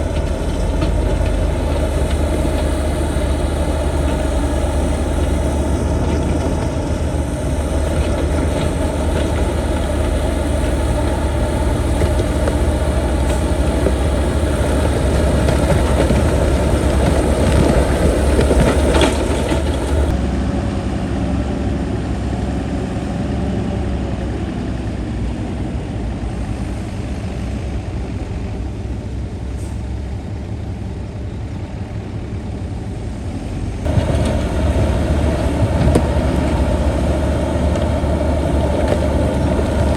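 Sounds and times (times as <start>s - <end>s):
knocks and clatter: 0.0s - 20.2s, 33.9s - 39.9s
heavy diesel engine rumbling: 0.0s - 39.9s.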